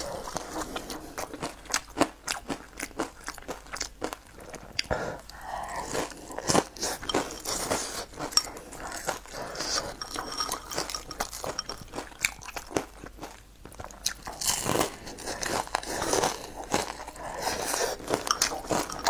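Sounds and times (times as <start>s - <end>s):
chewing crispy food: 0.0s - 19.0s
chopsticks in ceramic bowl: 6.8s - 12.7s, 17.7s - 19.0s.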